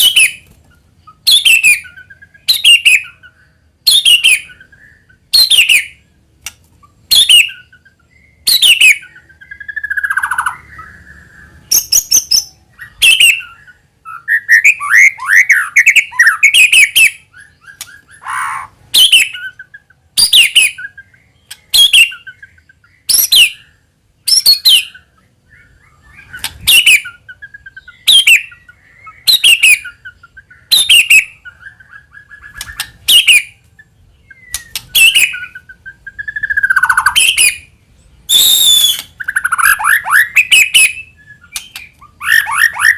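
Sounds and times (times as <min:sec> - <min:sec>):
bird singing sharp calls: 0:00.0 - 0:42.9
bird whistled warbling phrases: 0:38.3 - 0:42.9.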